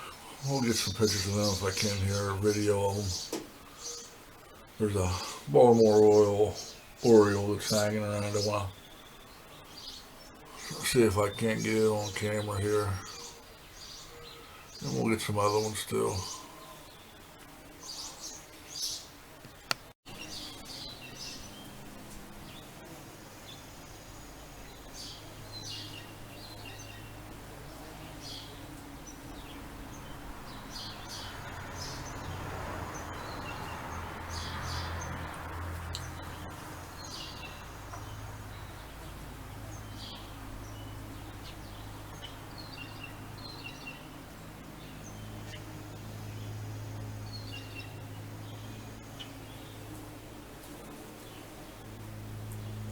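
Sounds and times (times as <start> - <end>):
mower engines: 0.0 - 3.2
background traffic hum: 0.0 - 52.9
small birds chirping: 0.0 - 52.9.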